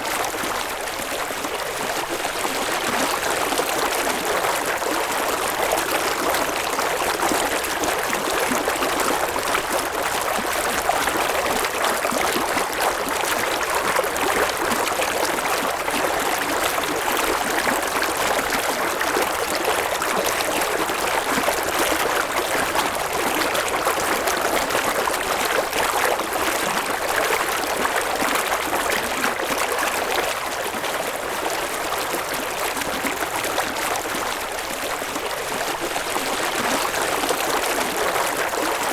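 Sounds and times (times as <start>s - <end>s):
river water flowing over rocks: 0.0s - 38.9s.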